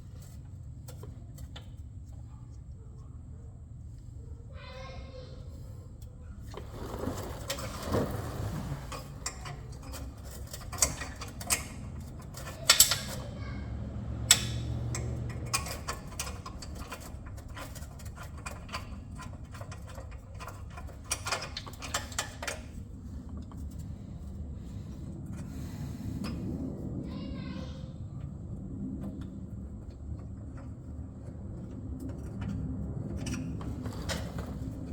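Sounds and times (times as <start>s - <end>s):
steady low hum: 0.0s - 34.9s
hand tools clinking on metal: 9.0s - 13.5s.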